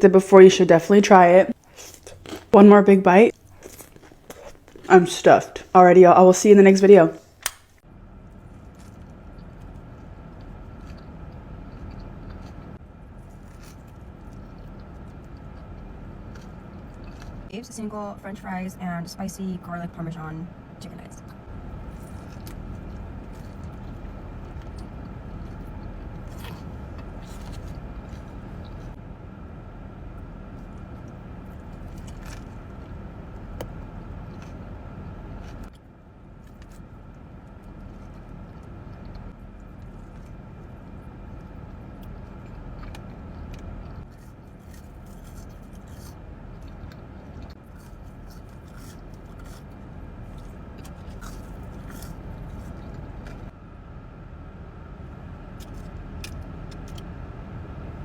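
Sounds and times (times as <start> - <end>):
low rumbling hum: 0.0 - 58.0
person eating crunchy food: 1.5 - 2.6, 3.2 - 5.2, 8.4 - 17.5, 21.8 - 29.0, 31.4 - 33.0, 36.4 - 53.5.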